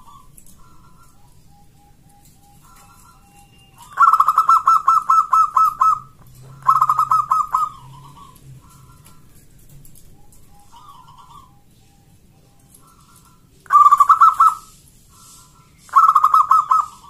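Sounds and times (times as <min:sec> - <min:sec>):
dove cooing: 0:00.0 - 0:17.0
soft bird calls: 0:00.0 - 0:17.0.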